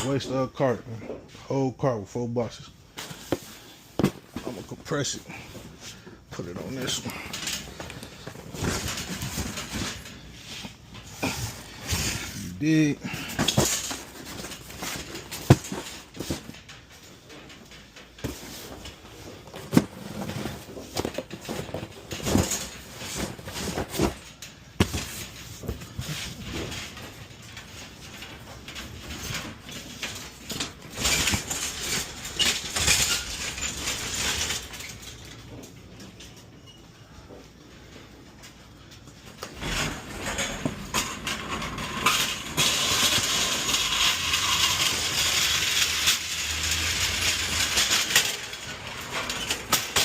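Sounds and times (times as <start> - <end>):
carts rattling: 3.0 - 36.5, 37.8 - 50.0
cardboard scraping and rustling: 7.6 - 16.7, 18.2 - 27.3.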